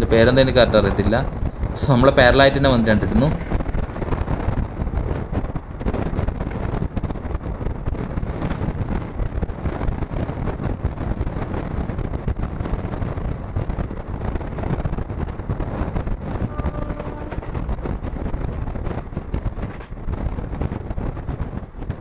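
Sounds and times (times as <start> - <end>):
train wheels rumbling on rails: 0.0 - 22.0
wind buffeting microphone: 0.0 - 22.0.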